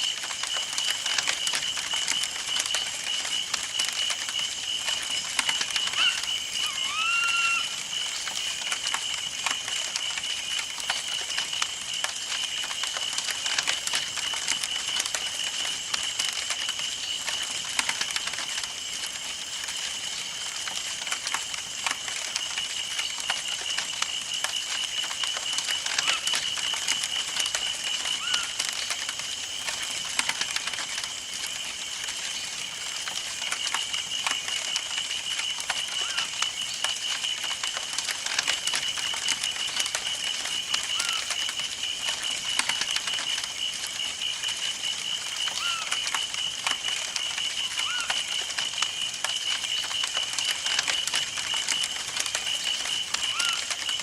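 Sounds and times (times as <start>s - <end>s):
campfire crackling: 0.0s - 54.0s
bird rising call: 5.9s - 7.8s, 28.2s - 28.6s, 41.0s - 41.3s, 45.5s - 45.9s, 47.7s - 48.2s, 53.2s - 53.6s.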